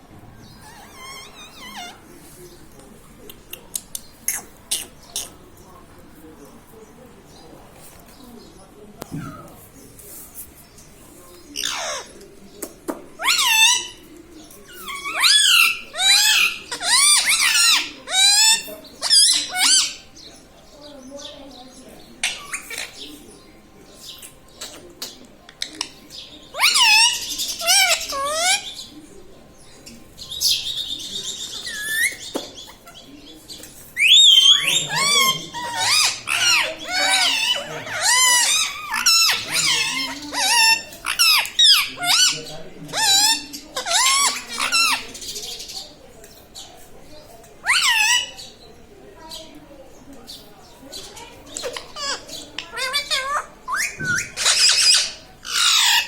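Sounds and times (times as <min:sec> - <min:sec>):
parakeet squawking: 0:00.6 - 0:02.0, 0:11.6 - 0:12.2, 0:13.2 - 0:14.0, 0:14.6 - 0:20.1, 0:26.5 - 0:28.9, 0:34.0 - 0:45.8, 0:47.6 - 0:48.5, 0:51.5 - 0:56.0.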